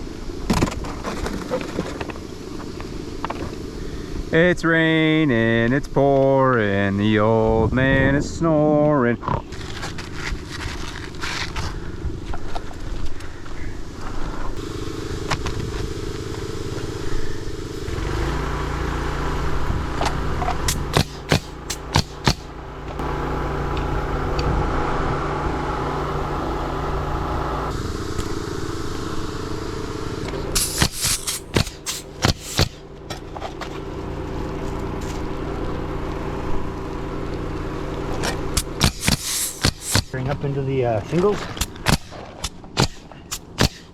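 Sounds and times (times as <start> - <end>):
small gas engine running: 0.0 - 4.4, 8.8 - 43.9
nail gun shots: 20.7 - 22.5, 30.6 - 32.8, 38.6 - 40.2, 41.6 - 43.9.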